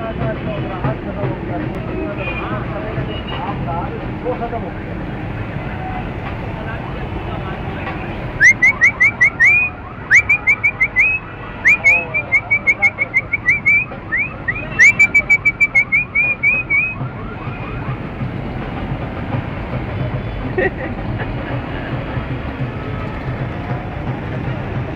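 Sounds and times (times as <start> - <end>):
parrot whistling calls: 8.4 - 17.0.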